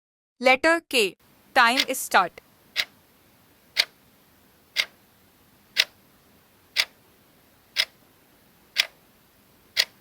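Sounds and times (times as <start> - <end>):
clock ticking: 1.6 - 2.0, 2.7 - 3.0, 3.7 - 4.0, 4.7 - 5.0, 5.7 - 6.0, 6.7 - 7.0, 7.7 - 8.0, 8.7 - 9.0, 9.7 - 10.0.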